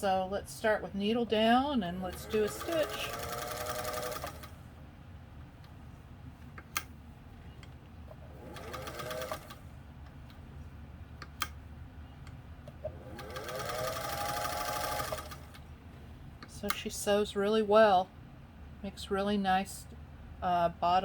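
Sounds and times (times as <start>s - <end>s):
sewing machine running: 2.0s - 4.6s, 8.2s - 9.6s, 12.8s - 15.6s.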